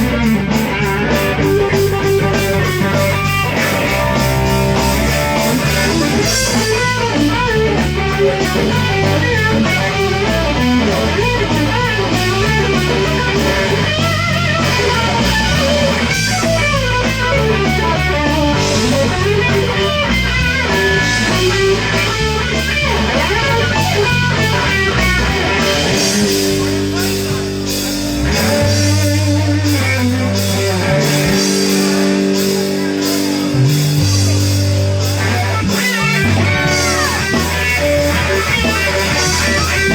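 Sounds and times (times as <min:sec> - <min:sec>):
bass line: 0:00.0 - 0:39.9
electric guitar lead: 0:00.0 - 0:39.9.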